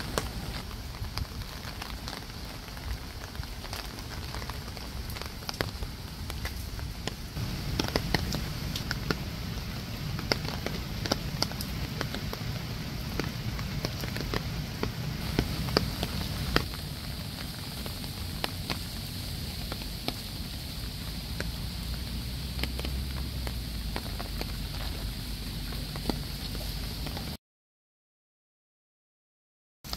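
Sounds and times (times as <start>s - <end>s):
spraying water splashing: 3.6s - 27.4s.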